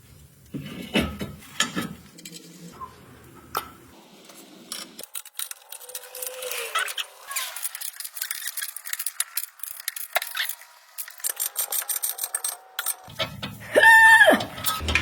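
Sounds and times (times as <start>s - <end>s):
metal tools clinking: 4.7s - 15.0s.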